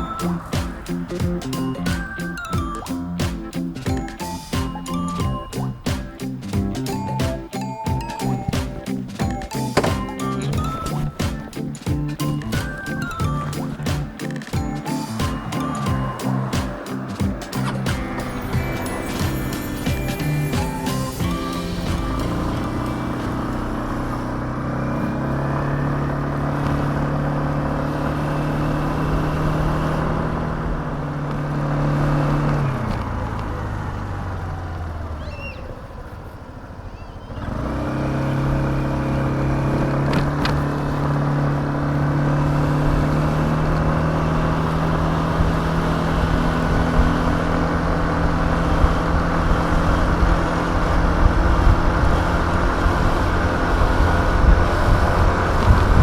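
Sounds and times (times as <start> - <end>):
scooter engine running: 0.0 - 56.0
wind rush: 42.6 - 56.0.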